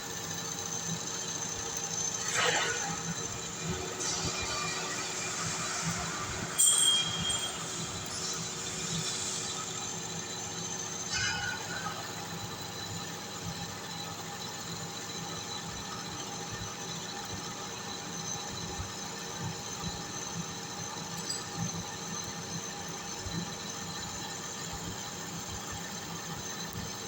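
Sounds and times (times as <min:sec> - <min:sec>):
metal lathe humming: 0:01.3 - 0:12.8
held high tones: 0:03.6 - 0:10.1.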